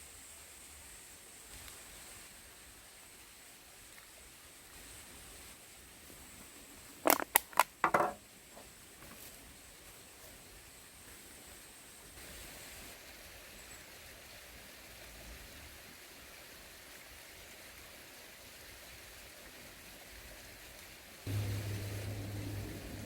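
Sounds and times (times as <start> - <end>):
faint outdoor background hiss: 0.0 - 23.0.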